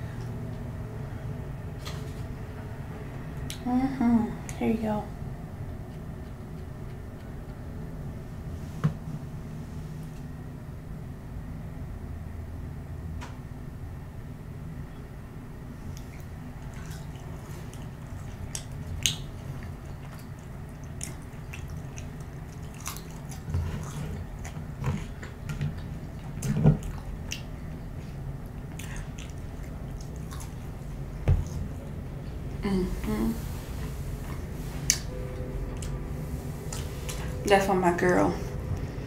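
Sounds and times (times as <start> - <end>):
chewing with wet mouth clicks: 15.9 - 31.8.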